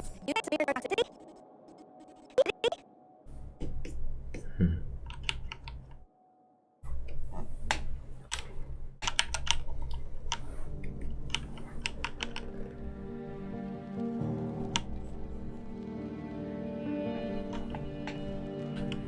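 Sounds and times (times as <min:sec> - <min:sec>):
faint music: 0:00.0 - 0:19.0
keyboard and mouse clicks: 0:05.0 - 0:06.0, 0:07.6 - 0:12.6.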